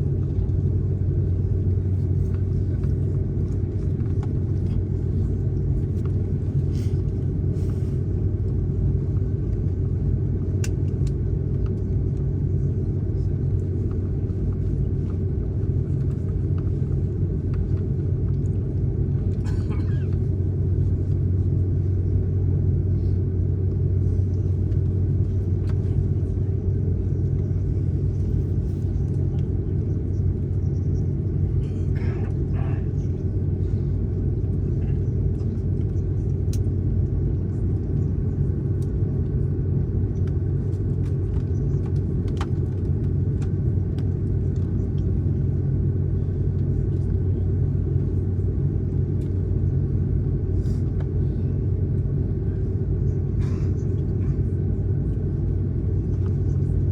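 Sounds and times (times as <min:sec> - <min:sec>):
airliner cabin engine rumble: 0:00.0 - 0:56.9.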